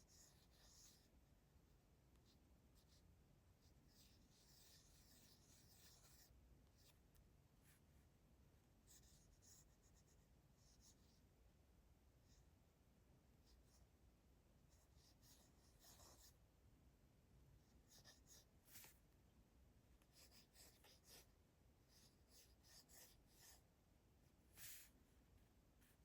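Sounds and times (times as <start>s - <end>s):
pencil scratching on paper: 0.0s - 1.1s, 3.6s - 7.0s, 8.9s - 11.2s, 14.7s - 16.4s, 17.7s - 19.0s, 20.0s - 21.3s, 21.9s - 23.6s, 24.5s - 25.0s.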